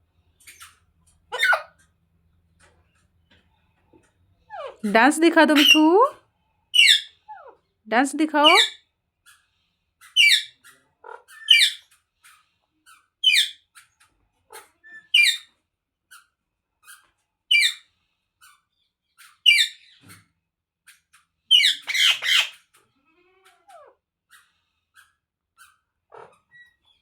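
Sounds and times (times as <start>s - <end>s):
parrot squawking: 1.3s - 1.8s, 4.5s - 6.0s, 6.8s - 7.5s, 8.4s - 8.8s, 10.2s - 10.5s, 11.2s - 11.8s, 13.2s - 13.6s, 14.5s - 15.4s, 21.5s - 22.6s.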